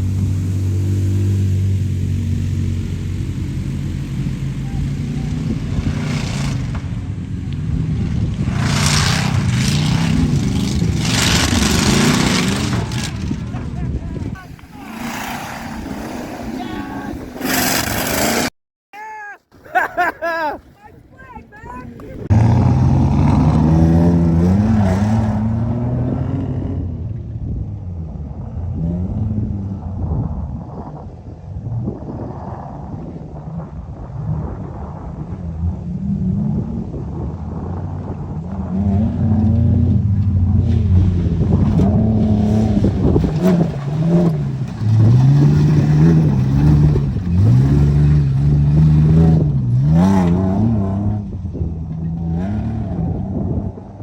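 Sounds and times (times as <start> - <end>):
truck engine running: 0.0 - 8.5
truck engine revving: 0.0 - 18.6, 22.2 - 30.8, 34.4 - 54.0.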